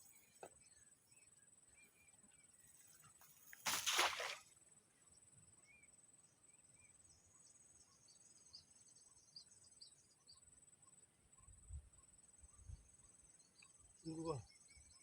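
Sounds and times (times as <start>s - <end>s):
faint chirps: 5.6s - 15.0s.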